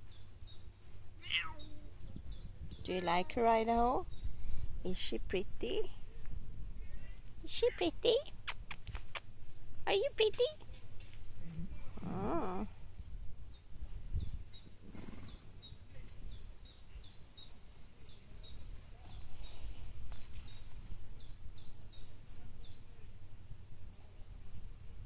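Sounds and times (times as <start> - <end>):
small bird chirping: 0.0 - 5.8, 13.5 - 22.9
low outdoor rumble: 0.0 - 25.0.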